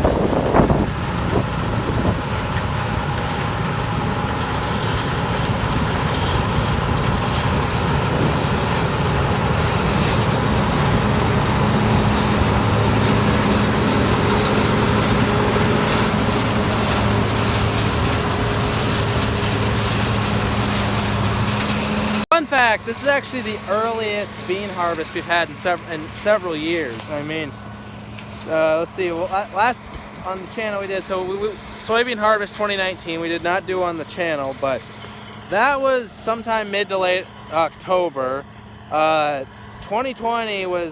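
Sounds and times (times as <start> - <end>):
wind buffeting microphone: 0.0 - 22.3
combine harvester running: 0.0 - 40.9.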